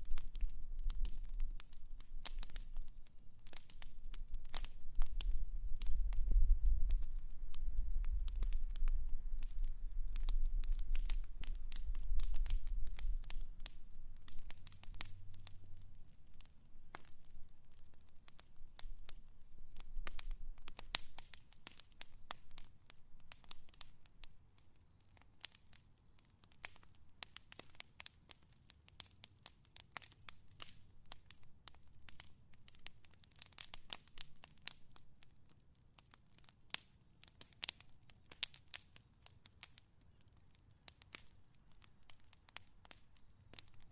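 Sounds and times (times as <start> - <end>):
fire crackling and popping: 0.0 - 43.9.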